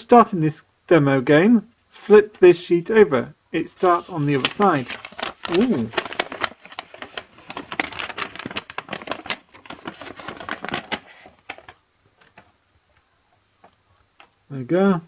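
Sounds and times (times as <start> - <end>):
paper crackling and rustling: 3.6 - 14.4.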